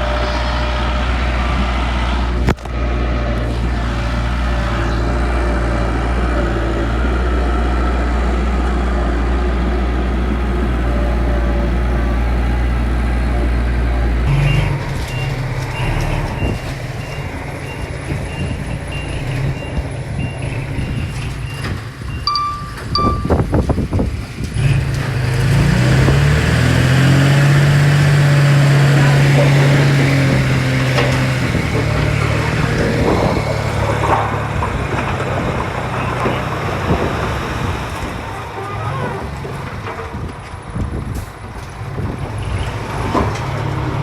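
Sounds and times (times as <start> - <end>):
diesel engine running: 0.0 - 44.0
back-up alarm beeping: 22.1 - 23.6.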